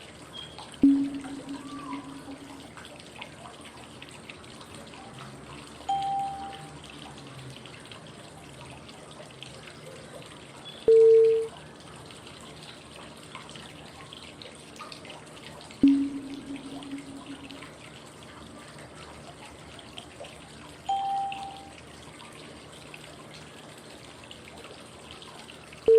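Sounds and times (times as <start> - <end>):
short pitched cue tones: 0.8 - 2.7, 5.9 - 6.7, 15.8 - 17.8, 20.9 - 21.7
flowing water white noise: 5.2 - 8.6, 15.8 - 18.1, 20.8 - 21.9.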